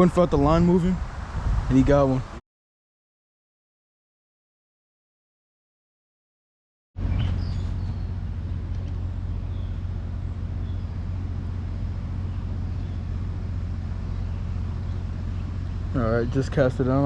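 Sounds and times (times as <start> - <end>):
steady low rumble: 7.0 - 17.0.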